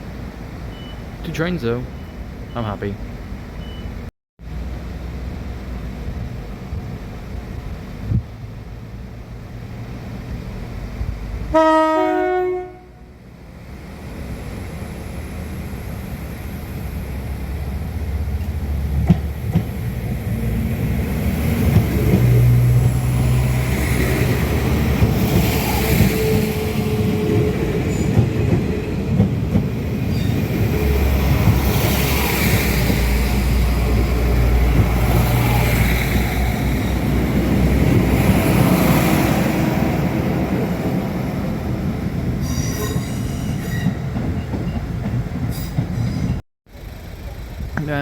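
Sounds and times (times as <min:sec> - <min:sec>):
train engine and wheels: 0:00.0 - 0:48.0
train two-note horn: 0:11.5 - 0:13.1.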